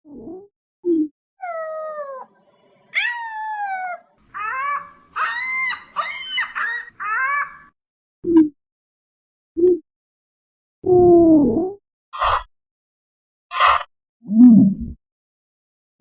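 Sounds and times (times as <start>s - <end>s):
animal whining cries: 2.9s - 7.7s.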